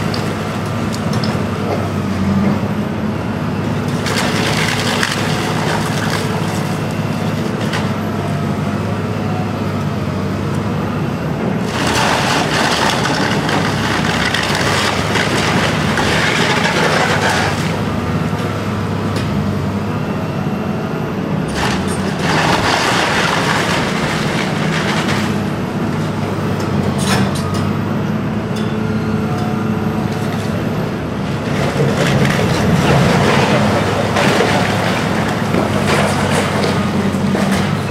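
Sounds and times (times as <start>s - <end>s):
excavator diesel engine running: 0.0s - 37.9s
debris crunching and cracking: 3.8s - 7.9s, 11.6s - 18.0s, 21.6s - 25.5s, 31.2s - 37.9s.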